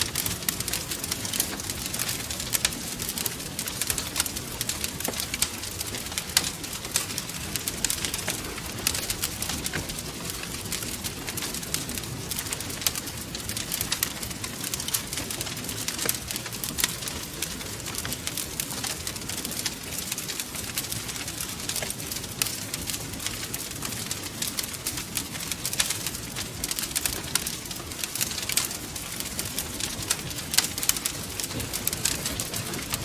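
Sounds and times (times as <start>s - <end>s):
low rumble of flames: 0.0s - 33.0s
wood fire popping and snapping: 0.0s - 33.0s.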